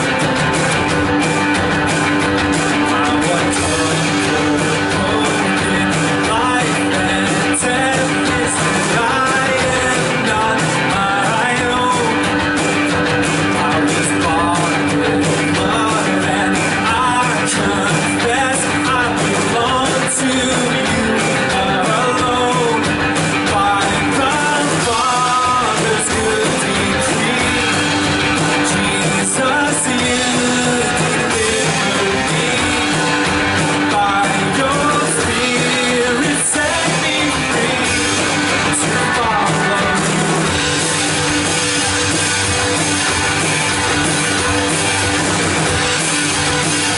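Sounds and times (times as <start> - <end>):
worship band playing: 0.0 - 46.9
people singing: 2.8 - 12.2, 13.4 - 22.8, 23.4 - 40.1.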